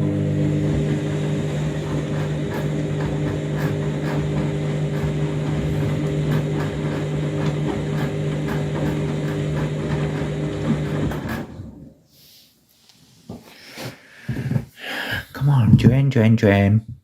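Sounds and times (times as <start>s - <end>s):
washing machine motor hum: 0.0s - 12.0s
water swishing in drum: 0.8s - 11.6s.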